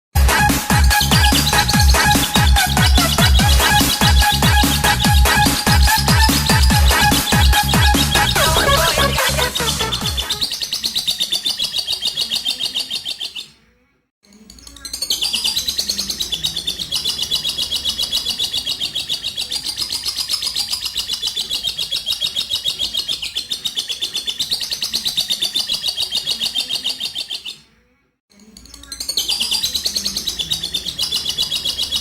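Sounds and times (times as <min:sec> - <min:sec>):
lovebird chattering: 0:00.3 - 0:13.5, 0:14.6 - 0:27.6, 0:28.6 - 0:32.0.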